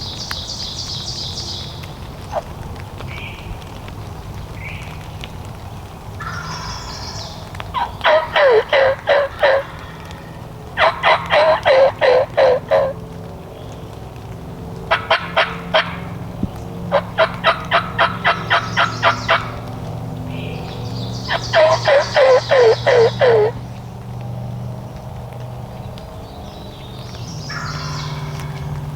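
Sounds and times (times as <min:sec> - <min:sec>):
wild turkey yelping: 0:06.2 - 0:13.0, 0:14.9 - 0:16.2, 0:16.9 - 0:19.7, 0:21.1 - 0:23.6, 0:27.5 - 0:28.6.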